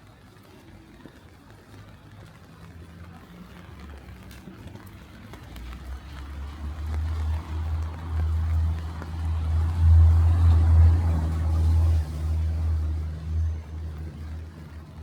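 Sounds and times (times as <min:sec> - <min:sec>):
faint rain: 0:00.0 - 0:15.0
vehicle engine passing: 0:05.5 - 0:15.0.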